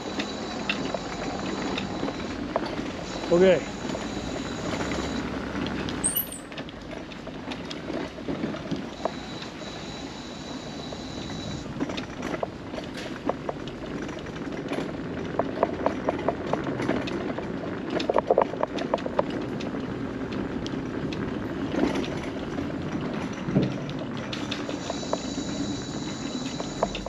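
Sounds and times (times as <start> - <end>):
scooter running noise: 0.0 - 27.0
wheels clacking over planks: 11.7 - 27.0.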